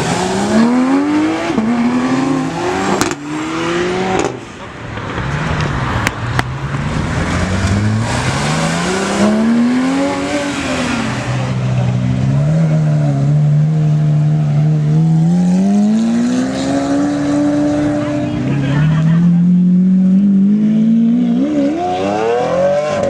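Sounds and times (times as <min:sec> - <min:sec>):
car engine revving loudly: 0:00.0 - 0:04.4, 0:07.0 - 0:23.0.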